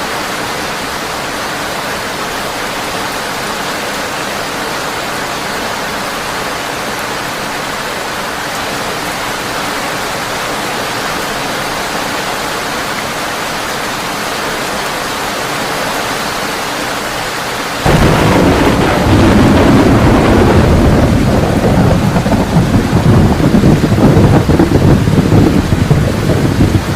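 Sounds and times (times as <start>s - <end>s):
heavy rain on a tin roof: 0.0s - 26.9s
thunder clap: 17.8s - 26.9s.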